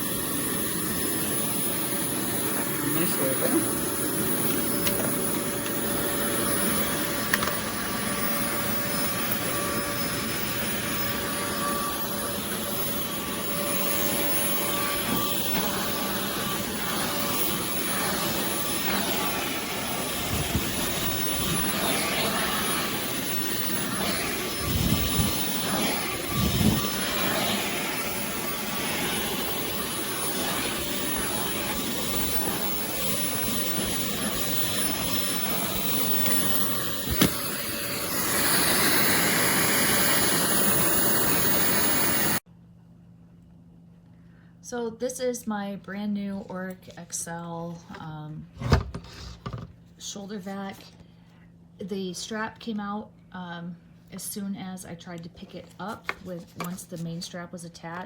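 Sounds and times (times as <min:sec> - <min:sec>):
vacuum cleaner running: 0:00.0 - 0:42.5, 0:47.3 - 0:50.4.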